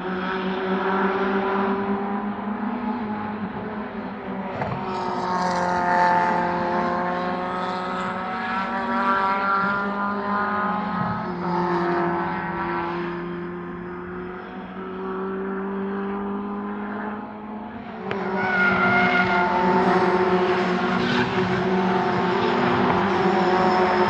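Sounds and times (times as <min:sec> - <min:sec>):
racing car engines droning: 0:00.0 - 0:24.0.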